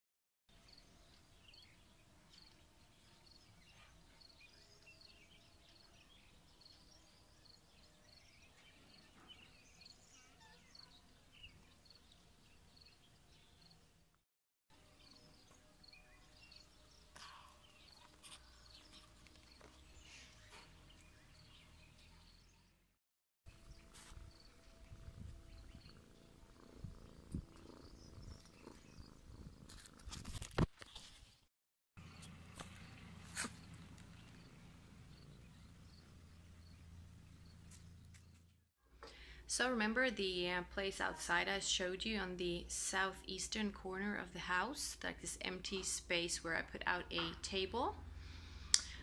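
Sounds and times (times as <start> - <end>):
birds chirping: 0.5 - 14.0, 14.8 - 22.9, 23.5 - 29.7, 32.0 - 38.4.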